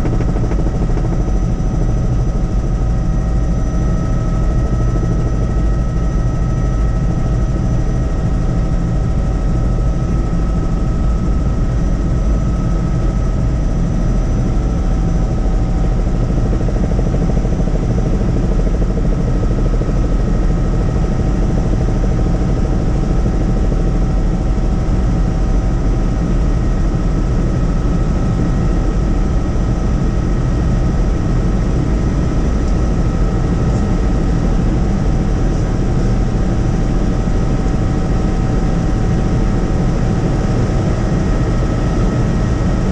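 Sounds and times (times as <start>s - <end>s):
steady whining tones: 0.0s - 17.1s
helicopter rotor and engine rumble: 0.0s - 42.9s.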